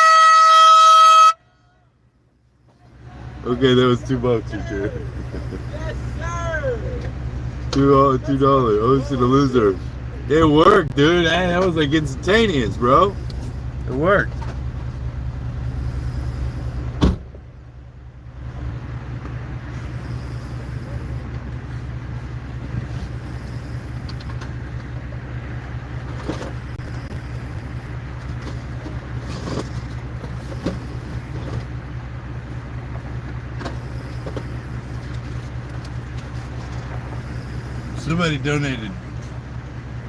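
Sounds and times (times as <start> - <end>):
engine humming: 0.0 - 40.0.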